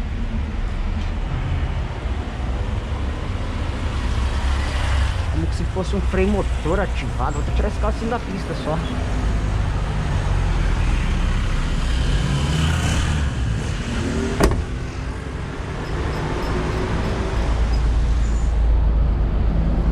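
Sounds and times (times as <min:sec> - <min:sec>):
bus engine droning: 0:00.0 - 0:19.9.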